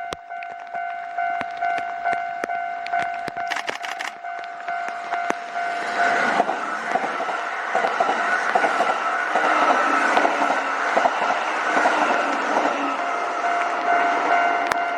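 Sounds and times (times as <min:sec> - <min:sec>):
level crossing warning bell: 0:00.0 - 0:09.4, 0:10.4 - 0:14.9
train rushing past: 0:03.5 - 0:14.9.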